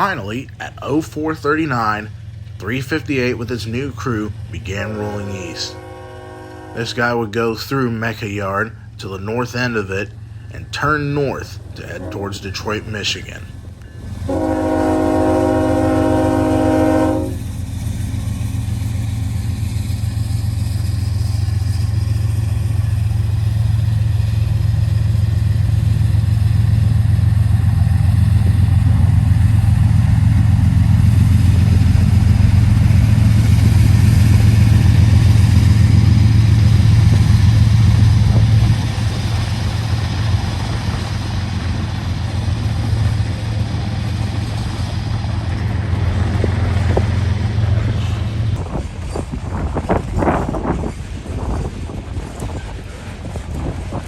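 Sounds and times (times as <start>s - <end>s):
diesel locomotive rumble: 0.0s - 54.0s
locomotive air horn: 4.7s - 7.2s, 11.8s - 13.2s, 14.2s - 17.4s.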